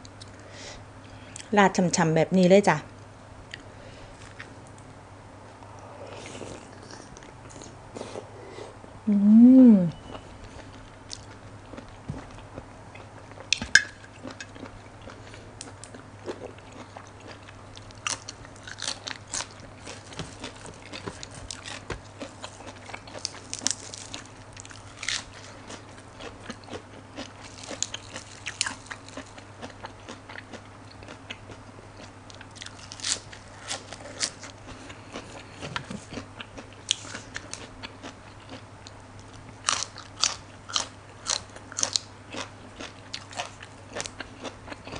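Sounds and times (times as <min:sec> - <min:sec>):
faint low hum: 0:00.0 - 0:44.9
crisp crunching of vegetables: 0:10.1 - 0:31.2, 0:32.0 - 0:38.6.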